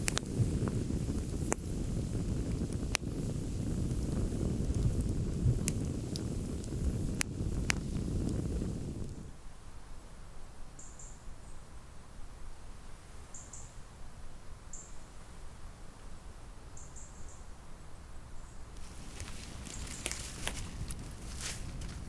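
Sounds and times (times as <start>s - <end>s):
crisp crackling clicks: 0.0s - 1.8s, 2.4s - 9.2s, 18.8s - 22.0s
low wind rumble: 0.0s - 9.4s, 18.6s - 22.0s
small bird peeping: 18.8s - 21.5s.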